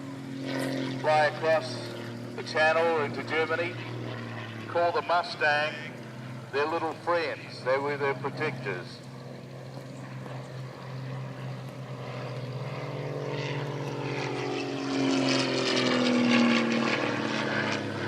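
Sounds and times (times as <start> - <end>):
propeller plane flying past: 0.0 - 18.0
steady low hum: 0.0 - 18.0.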